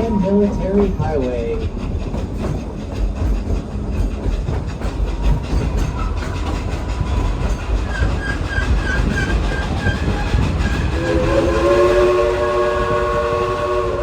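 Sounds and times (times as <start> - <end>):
steam train rumble and clatter: 0.0 - 14.0
steam whistle chord: 10.9 - 14.0.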